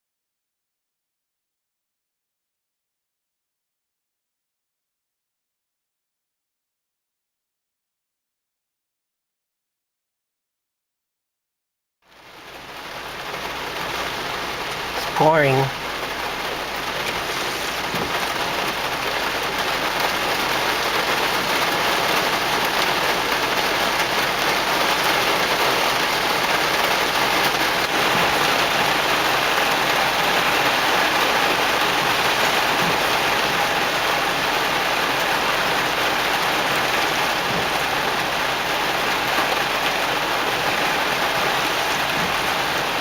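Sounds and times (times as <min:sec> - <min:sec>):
heavy rain pouring: 0:12.1 - 0:43.0.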